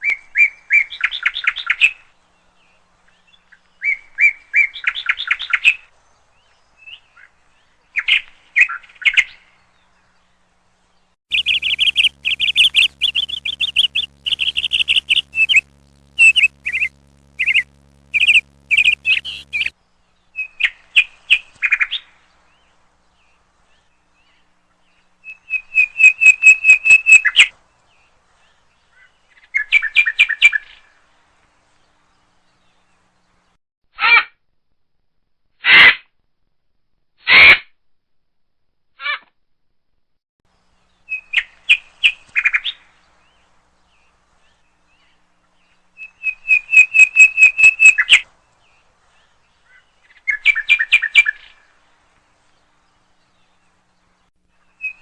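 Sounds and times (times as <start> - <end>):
small bird chirping and twittering: 11.3 - 19.7.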